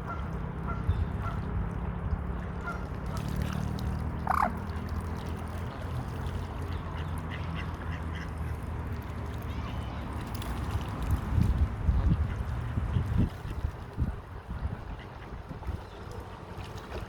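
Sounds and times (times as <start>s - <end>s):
waterfowl honking calls: 4.2s - 4.7s.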